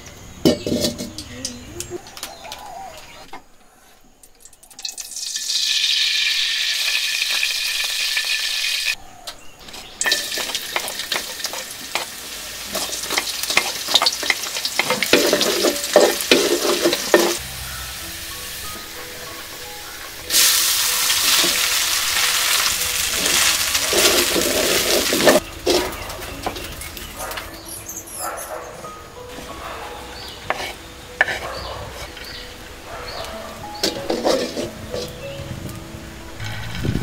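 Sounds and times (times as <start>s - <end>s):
spatula scraping a wok: 0.5s - 1.2s, 10.0s - 17.4s, 21.2s - 28.2s, 30.2s - 32.4s, 33.8s - 35.2s
ginger crackling in oil: 4.2s - 9.0s, 9.6s - 17.5s, 20.2s - 28.0s
oil sizzling in a wok: 4.8s - 9.0s, 10.0s - 27.7s, 33.6s - 35.8s.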